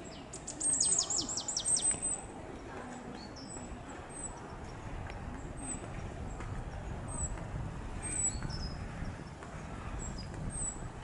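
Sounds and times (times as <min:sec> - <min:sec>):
small birds chirping: 0:00.0 - 0:11.0
steady low rumble: 0:03.5 - 0:11.0.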